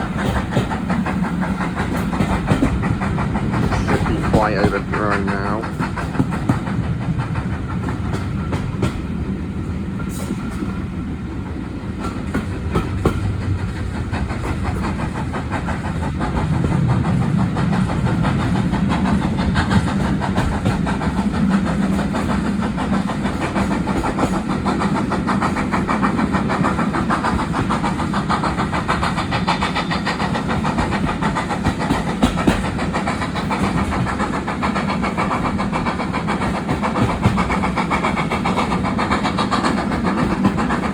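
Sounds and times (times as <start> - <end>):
wheels clicking over rail joints: 0.0 - 10.8, 12.0 - 40.9
train rumbling: 0.0 - 40.9.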